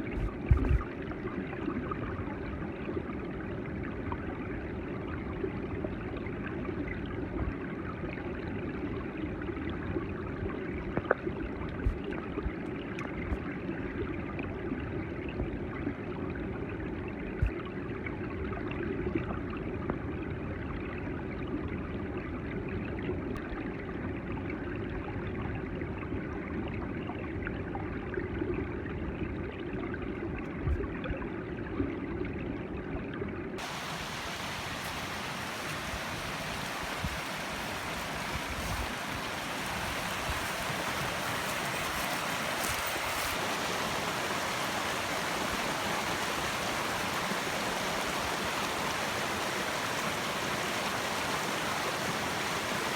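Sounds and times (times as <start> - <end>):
mountain stream flowing: 33.6 - 52.9.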